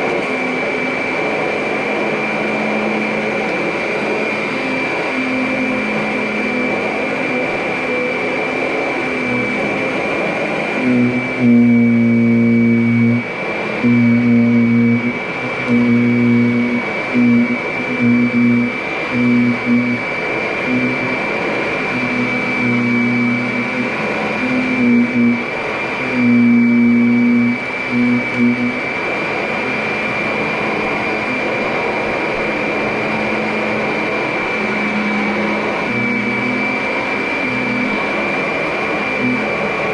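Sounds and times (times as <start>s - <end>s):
vacuum cleaner motor whine: 0.0s - 39.9s
low hum bursts: 10.3s - 38.3s.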